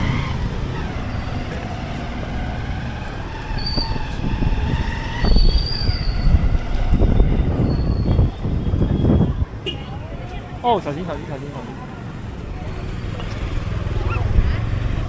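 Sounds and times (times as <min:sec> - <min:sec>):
high-pitched squeal: 0:00.0 - 0:08.5.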